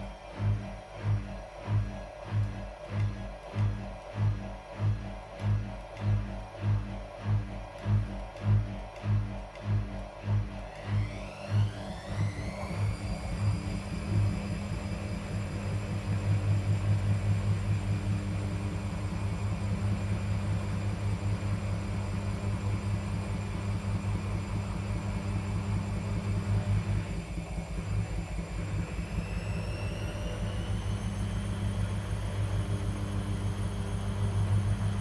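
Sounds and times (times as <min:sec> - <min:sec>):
washing machine motor whine: 0:10.3 - 0:35.0.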